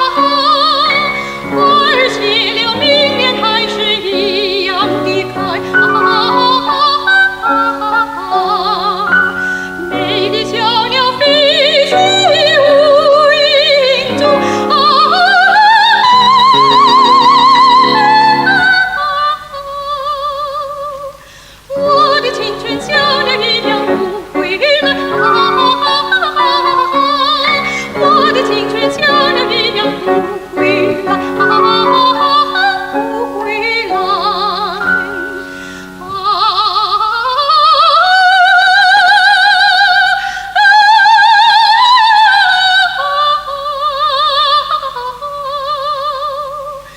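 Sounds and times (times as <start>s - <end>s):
soprano singing operatically: 0.0s - 46.9s.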